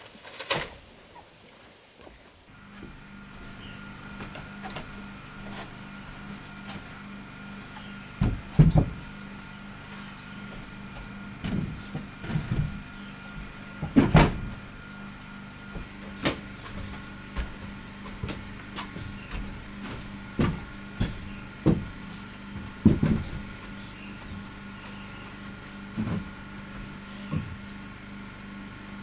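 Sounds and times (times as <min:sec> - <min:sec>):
wooden knocks and thuds: 0:02.6 - 0:27.7.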